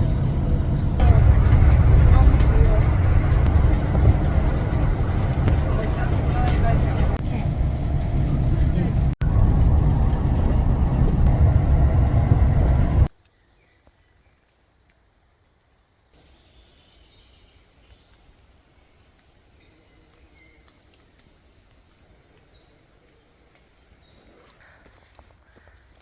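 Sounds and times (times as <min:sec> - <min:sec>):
loud low rumbling: 0:00.0 - 0:13.1.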